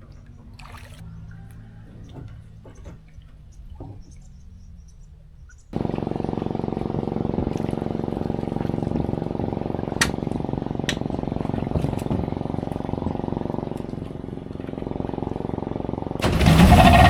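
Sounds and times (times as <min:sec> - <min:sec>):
boat engine running loudly: 0:05.8 - 0:17.0.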